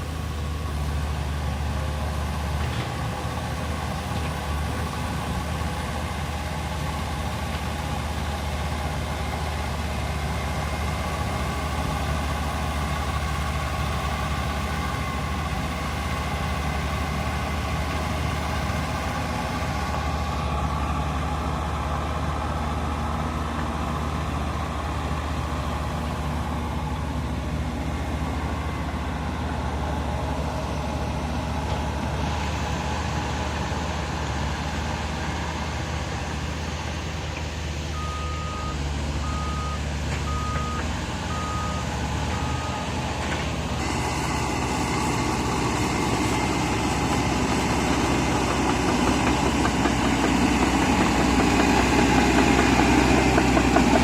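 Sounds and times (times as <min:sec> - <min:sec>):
heavy machine diesel engines: 0:00.0 - 0:54.0
reversing alarm beeps: 0:37.9 - 0:43.0.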